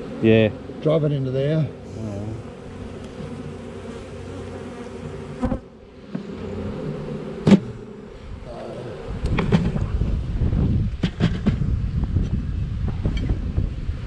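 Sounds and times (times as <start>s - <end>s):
bees buzzing: 0.0s - 10.3s.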